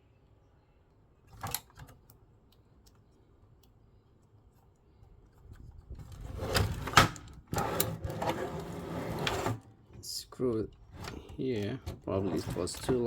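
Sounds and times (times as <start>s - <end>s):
parts being handled: 1.2s - 8.8s, 9.4s - 13.0s
rattling and scraping: 5.4s - 9.7s, 10.7s - 13.0s.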